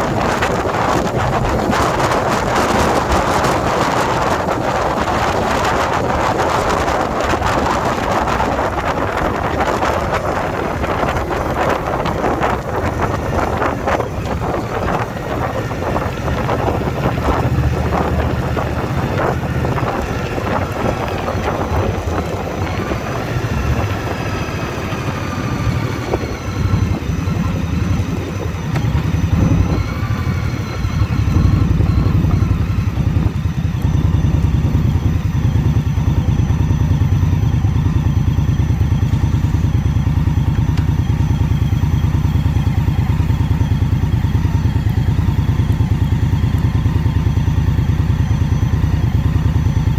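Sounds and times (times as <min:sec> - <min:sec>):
wind rushing over microphone: 0:00.0 - 0:37.4
motorcycle engine running: 0:00.0 - 0:49.9.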